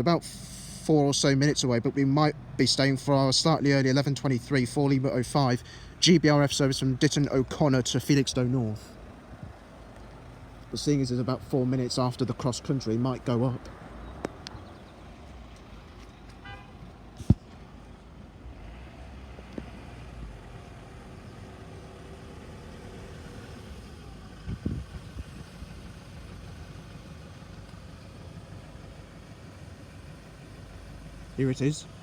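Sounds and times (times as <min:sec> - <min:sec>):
road traffic: 0:00.0 - 0:32.0
vehicle passing: 0:01.1 - 0:25.9.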